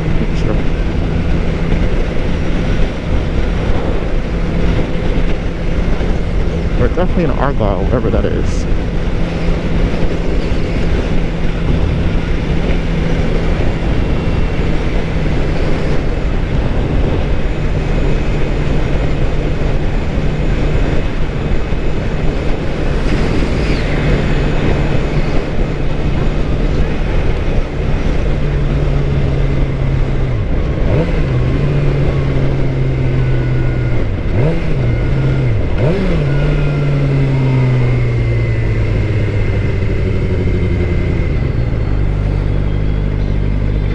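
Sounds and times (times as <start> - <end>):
heavy wind noise: 0.0 - 43.9
motorcycle engine cruising: 0.0 - 43.9.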